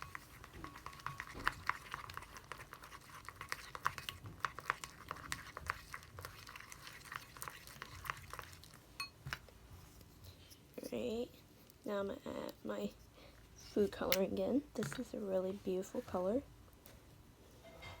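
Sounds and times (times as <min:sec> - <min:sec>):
tool stirring sticky mix in bowl: 0:00.0 - 0:13.1.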